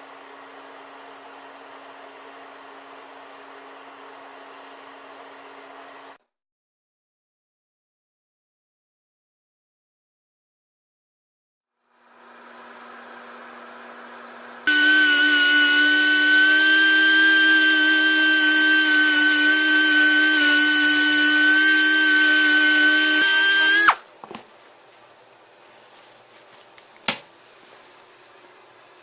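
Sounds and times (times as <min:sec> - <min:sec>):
power drill whining: 0:14.7 - 0:24.0.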